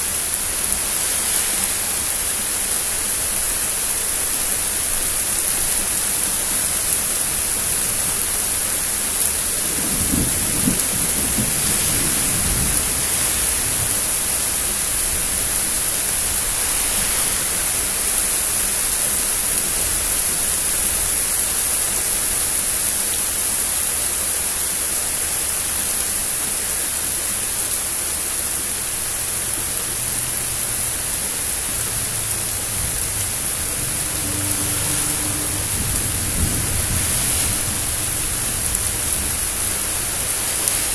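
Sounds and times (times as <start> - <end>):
steady rain hiss: 0.0 - 40.9
thunder rumble: 5.7 - 19.0, 31.5 - 40.9.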